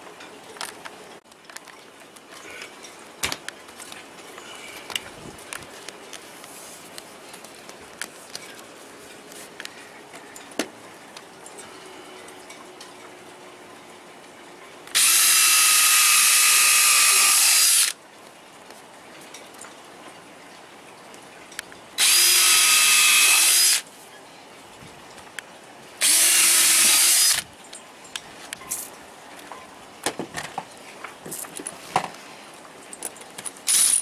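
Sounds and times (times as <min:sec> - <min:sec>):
power drill driving screws: 0:14.9 - 0:18.0, 0:22.0 - 0:23.8, 0:26.0 - 0:27.4, 0:33.7 - 0:34.0.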